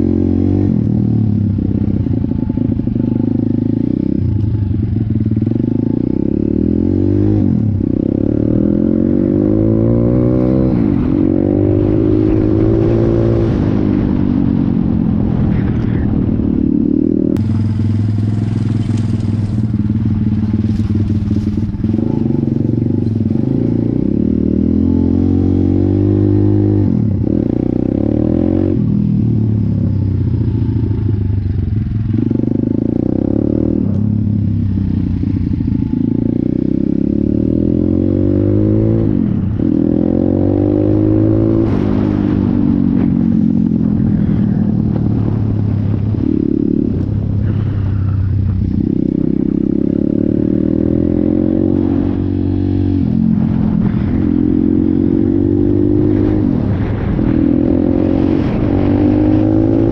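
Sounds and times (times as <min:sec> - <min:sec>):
pit bike engine revving: 0:16.7 - 0:28.8.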